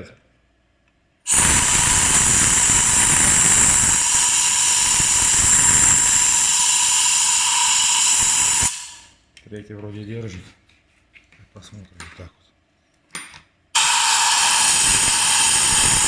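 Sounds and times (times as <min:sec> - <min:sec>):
compressed air hissing from blow gun: 0:01.3 - 0:09.2, 0:13.8 - 0:16.0.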